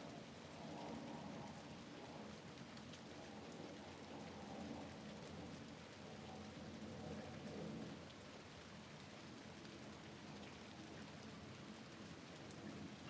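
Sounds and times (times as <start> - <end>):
rain on a window: 0.0 - 13.0.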